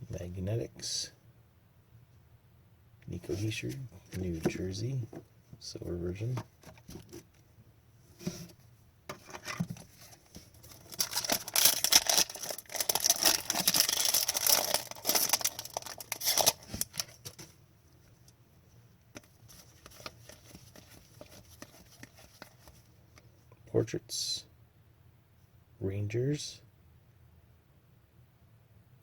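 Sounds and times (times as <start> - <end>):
foil wrapper tearing and crinkling: 10.6 - 17.3.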